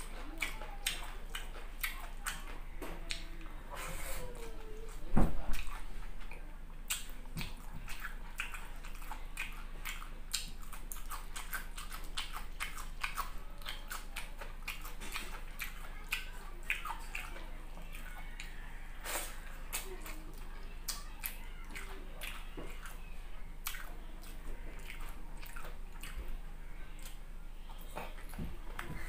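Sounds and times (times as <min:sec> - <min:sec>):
wet chewing and mouth clicks: 0:00.0 - 0:03.5, 0:05.5 - 0:27.2.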